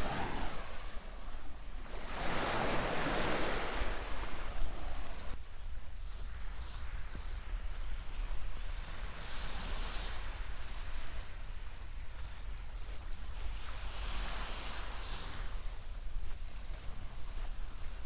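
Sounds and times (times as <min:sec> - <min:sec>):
surf washing in: 0:00.0 - 0:05.4
wind rumble on microphone: 0:00.0 - 0:18.0.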